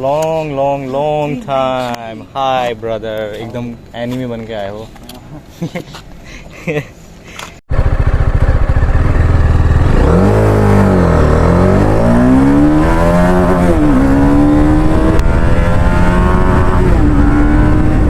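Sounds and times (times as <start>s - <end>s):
motorcycle engine revving: 7.7s - 18.0s.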